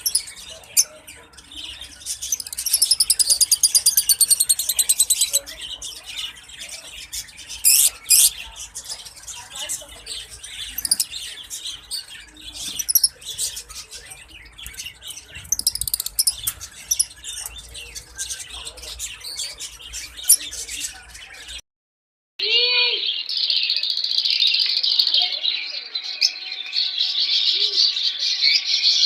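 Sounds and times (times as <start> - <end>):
lovebirds chirping: 0.0 - 21.6.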